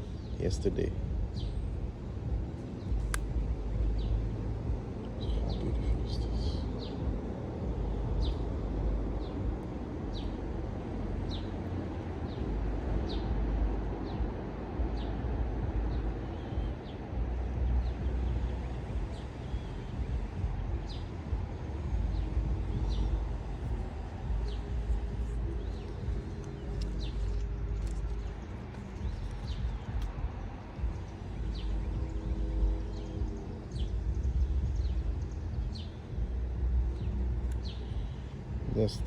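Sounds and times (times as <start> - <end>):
steady low rumble: 0.0 - 39.0
bird chirping: 14.9 - 39.0.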